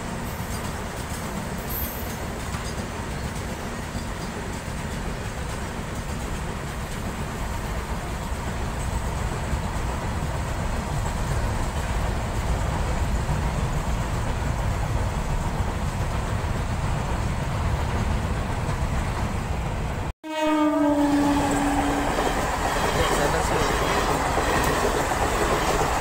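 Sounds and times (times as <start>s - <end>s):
freight train wheels on rails: 0.0s - 20.1s, 20.9s - 26.0s
train horn long note: 20.2s - 22.4s.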